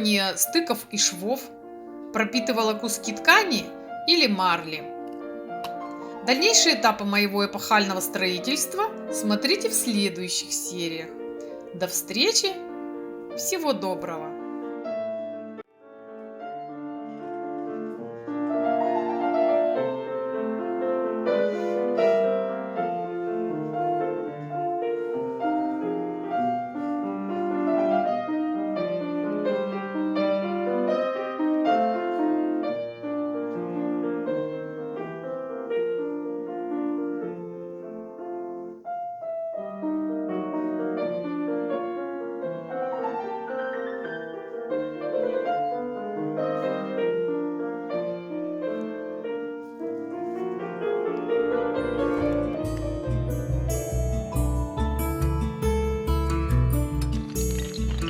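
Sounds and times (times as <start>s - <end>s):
gentle piano music: 0.0s - 58.0s.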